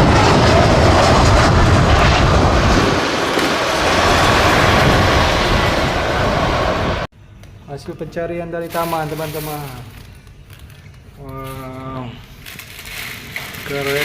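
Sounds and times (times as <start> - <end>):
jet engine roar: 0.0 - 7.1.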